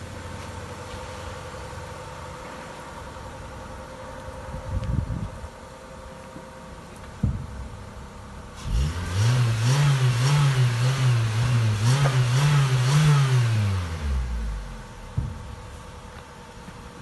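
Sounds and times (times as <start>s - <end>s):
car engine idling and revving: 0.0s - 17.0s
short knock: 15.1s - 15.5s.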